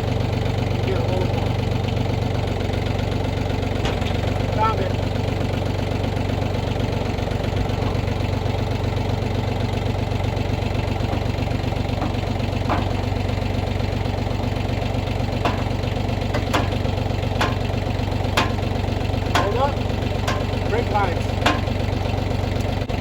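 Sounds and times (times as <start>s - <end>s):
engine idling: 0.0s - 23.0s
sharp knocks: 10.6s - 22.1s.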